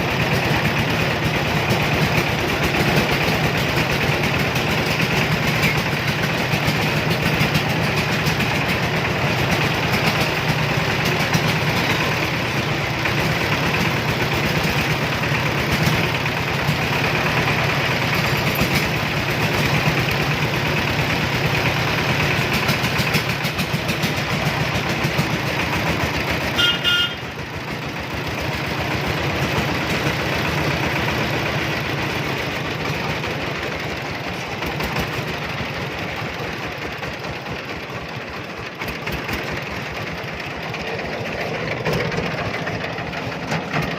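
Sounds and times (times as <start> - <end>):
three-wheeler engine running: 0.0 - 43.9
short horn beep: 26.6 - 27.2.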